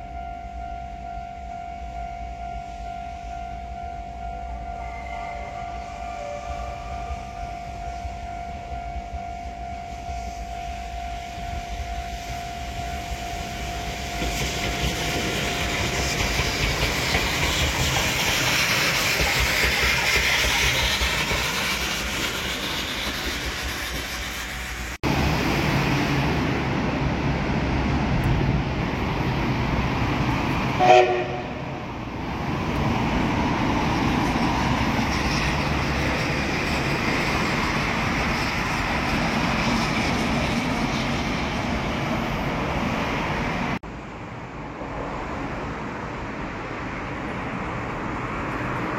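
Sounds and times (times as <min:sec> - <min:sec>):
train rolling on track: 0:00.0 - 0:48.9
train horn blast: 0:04.8 - 0:08.1, 0:30.8 - 0:31.8.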